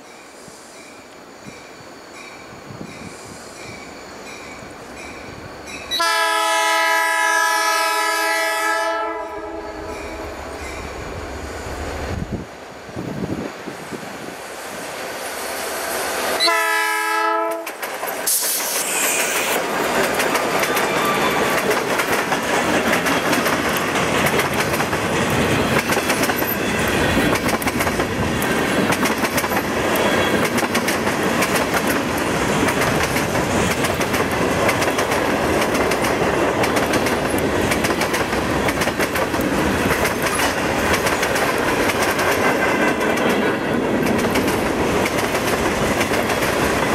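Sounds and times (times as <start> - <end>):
train wheels rumbling: 1.4 - 46.9
train horn blast: 5.9 - 10.6, 16.4 - 17.7
wheels clicking over rail joints: 17.5 - 46.9.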